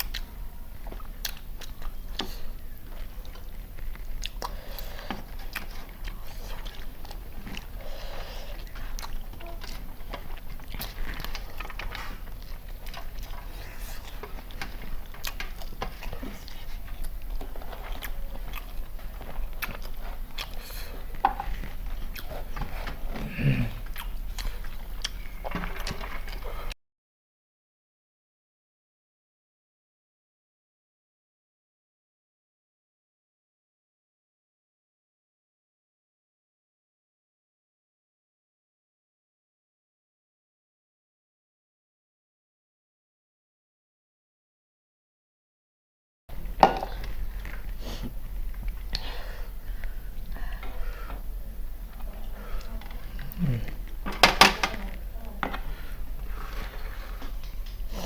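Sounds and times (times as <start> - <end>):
mouth clicks and smacks: 0.0 - 26.6
chewing and biting: 0.0 - 26.7
short vocal sound: 23.0 - 23.8, 53.2 - 54.0.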